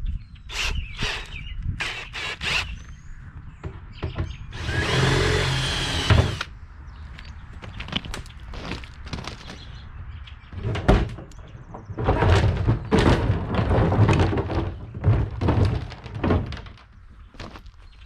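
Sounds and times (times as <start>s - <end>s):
banging and scraping: 3.4s - 6.5s, 10.5s - 17.8s.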